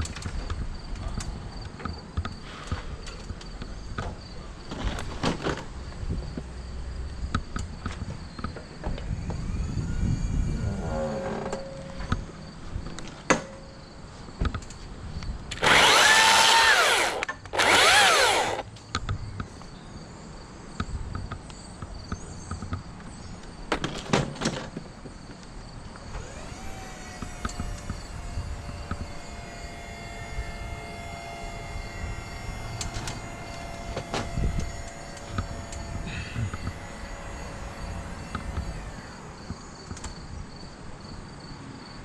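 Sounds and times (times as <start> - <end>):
power tool revving: 15.5 - 18.7, 26.1 - 39.4
machine hum with held tone: 26.1 - 39.6.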